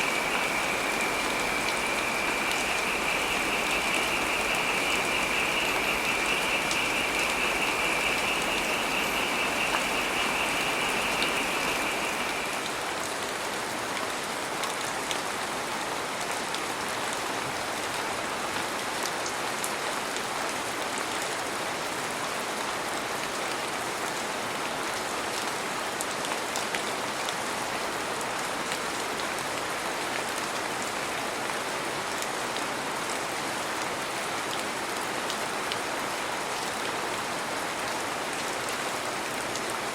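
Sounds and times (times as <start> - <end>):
high rapidly pulsing buzz: 0.0 - 12.7
heavy rain falling: 0.0 - 39.9.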